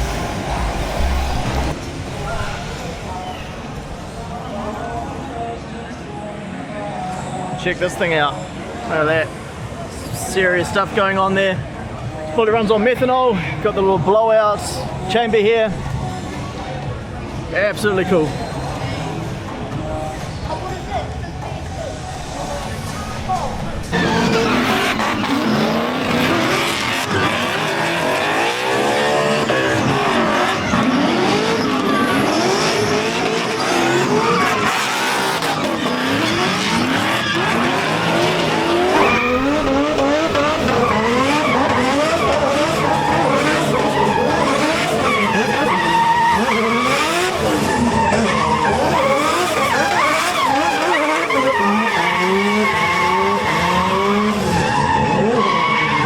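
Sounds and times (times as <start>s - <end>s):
car engines revving: 0.0s - 56.0s
tyres squealing: 23.9s - 56.0s.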